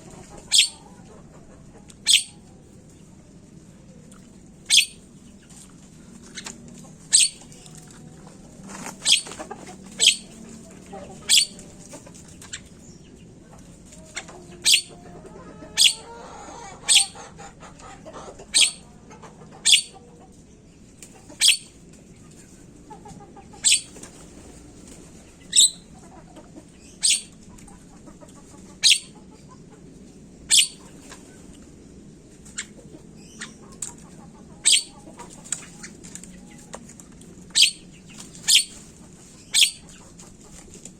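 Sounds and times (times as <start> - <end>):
bird chattering: 0.4 - 0.9, 2.0 - 2.4, 4.6 - 5.1, 6.3 - 7.7, 9.0 - 12.9, 14.5 - 15.0, 15.6 - 17.5, 18.4 - 18.9, 19.5 - 20.0, 21.2 - 21.8, 23.5 - 24.0, 25.4 - 26.0, 26.8 - 27.4, 28.7 - 29.4, 30.4 - 31.1, 32.4 - 36.6, 37.5 - 38.8, 39.4 - 40.1.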